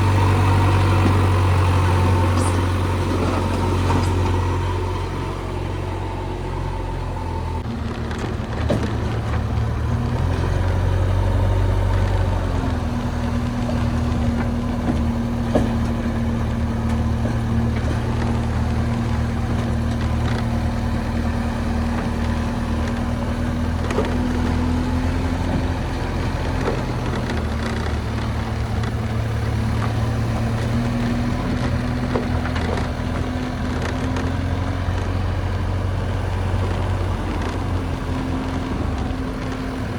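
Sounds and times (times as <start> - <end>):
steady machine whine: 0.0 - 8.2
heavy diesel engine running: 0.0 - 39.9.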